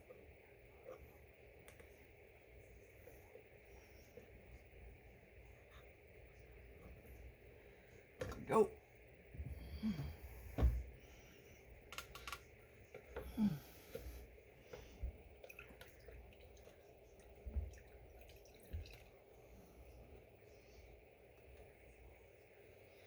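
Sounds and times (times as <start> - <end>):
coolant dripping and trickling: 14.7 - 19.3.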